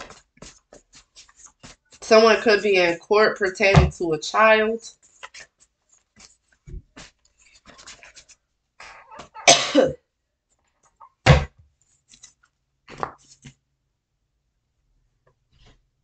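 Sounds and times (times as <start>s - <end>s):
soft clicks and rustles: 4.9s - 8.4s
person coughing: 8.9s - 10.0s.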